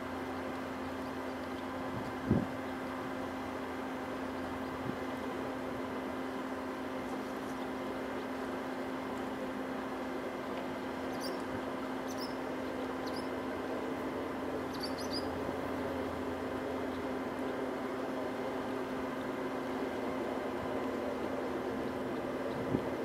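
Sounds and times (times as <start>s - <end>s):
background hiss and hum: 0.0s - 23.0s
distant birds chirping: 12.0s - 13.4s, 14.7s - 15.4s.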